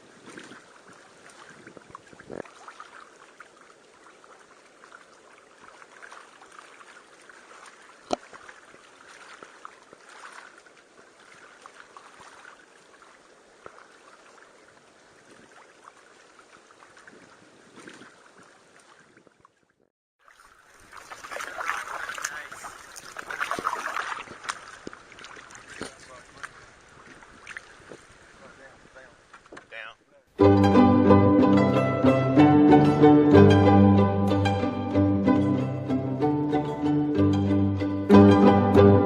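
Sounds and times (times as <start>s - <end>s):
water dripping and lapping: 0.0s - 29.8s
paddle strokes splashing: 0.0s - 29.9s.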